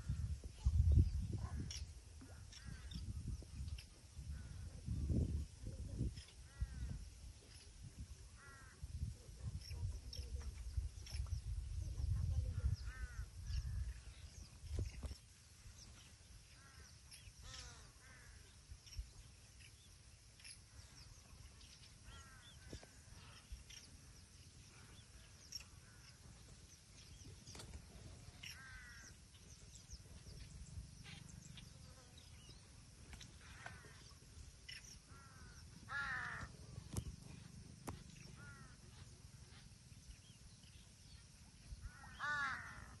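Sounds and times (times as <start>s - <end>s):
crows cawing: 8.4s - 8.8s, 28.4s - 29.1s, 35.1s - 36.5s, 38.4s - 38.8s, 41.8s - 43.0s.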